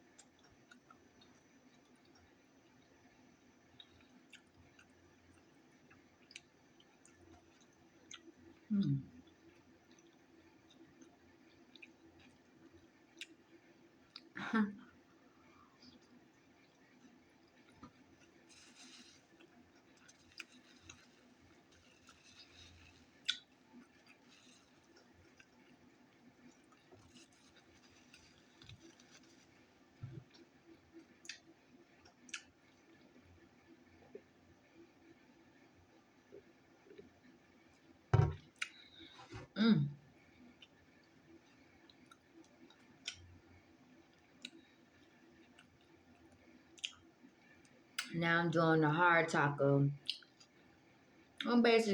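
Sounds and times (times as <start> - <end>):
chewing close to mic: 3.7 - 14.4, 15.9 - 33.0
wet mouth clicks from chewing: 41.9 - 43.3, 44.4 - 48.2, 50.0 - 50.6.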